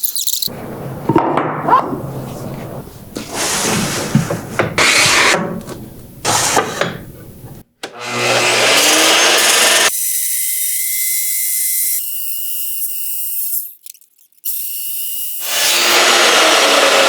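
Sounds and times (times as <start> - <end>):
workshop tools working wood: 0.5 - 9.9, 15.4 - 17.0.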